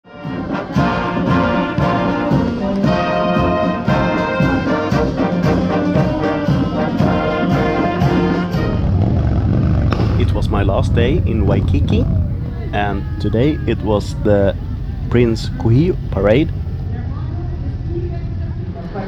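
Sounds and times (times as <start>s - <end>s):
brass band playing: 0.1s - 8.7s.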